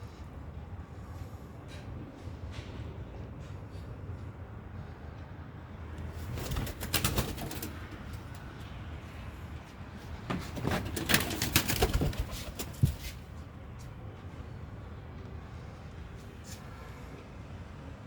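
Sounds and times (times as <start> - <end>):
pigeon wings flapping: 6.1 - 8.5, 10.3 - 13.2.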